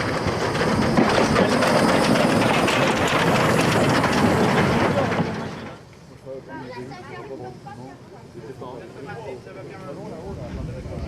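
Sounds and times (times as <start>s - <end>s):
train wheels clattering on rails: 0.0s - 6.0s.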